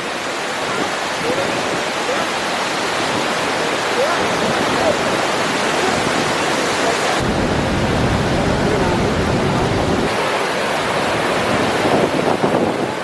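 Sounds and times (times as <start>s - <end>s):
waterfall roaring: 7.2s - 10.2s.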